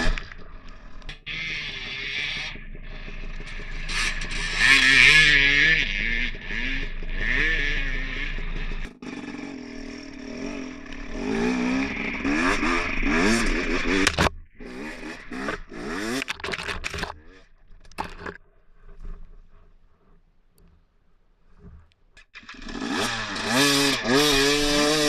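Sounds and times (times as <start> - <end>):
dirt bike engine revving: 0.0 - 18.4, 22.4 - 25.0.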